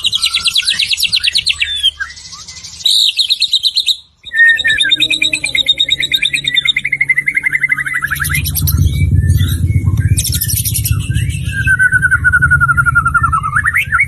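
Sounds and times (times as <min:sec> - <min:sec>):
low hum: 0:04.2 - 0:14.0.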